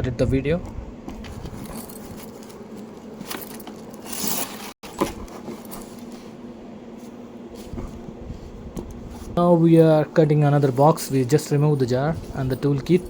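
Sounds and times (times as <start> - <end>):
packaging rustling and scraping: 1.1 - 9.4.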